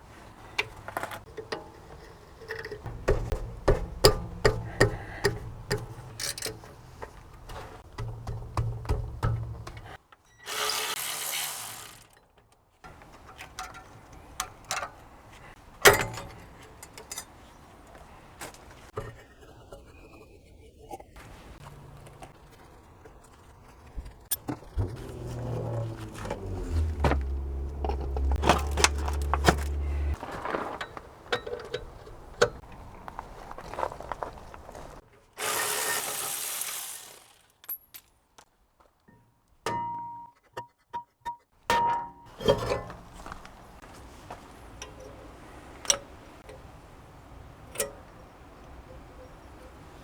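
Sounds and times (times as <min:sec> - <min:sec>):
metallic clicks and scrapes: 0:00.6 - 0:08.4
low hum: 0:24.8 - 0:30.2.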